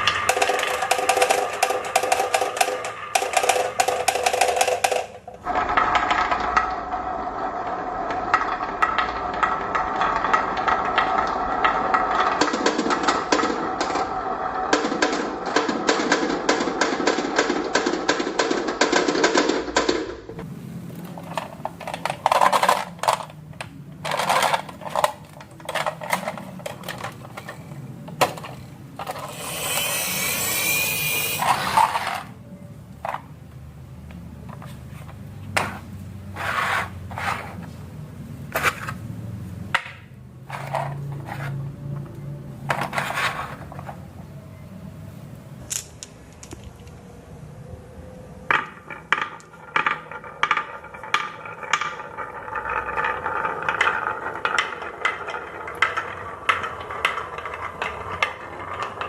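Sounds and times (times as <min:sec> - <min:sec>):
marbles clicking and clacking: 0:00.0 - 0:32.4, 0:48.5 - 0:59.0
marbles rolling rumble: 0:00.0 - 0:37.8, 0:38.5 - 0:47.0, 0:48.0 - 0:59.0.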